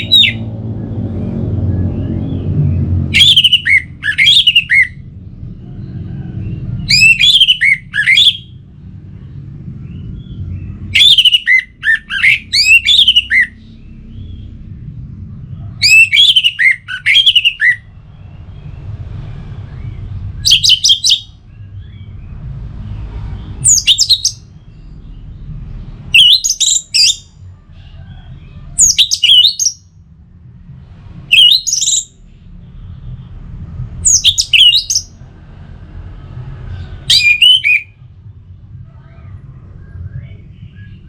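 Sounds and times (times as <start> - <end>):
thrush singing whistled notes: 0.0 - 0.5, 3.1 - 5.0, 6.8 - 8.6, 9.9 - 14.5, 15.8 - 17.9, 19.8 - 22.3, 23.6 - 25.3, 26.1 - 27.4, 28.8 - 29.9, 31.3 - 32.2, 34.0 - 35.2, 37.0 - 38.0.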